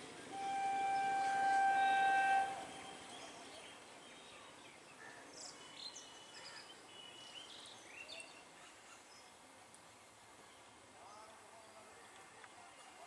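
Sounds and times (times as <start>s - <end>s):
steady outdoor background noise: 0.0s - 13.0s
train horn: 0.3s - 3.1s.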